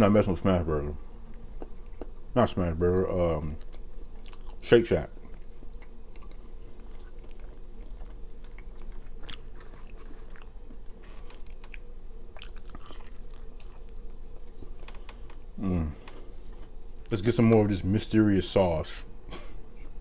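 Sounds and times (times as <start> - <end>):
steady low hum: 0.0 - 20.0
person chewing food: 1.2 - 2.2, 3.5 - 16.8.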